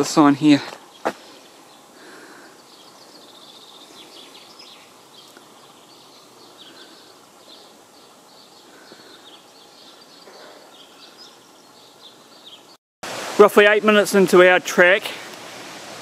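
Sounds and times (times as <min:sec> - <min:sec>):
birds chirping: 0:00.0 - 0:12.8
soft steady hiss: 0:00.0 - 0:16.0.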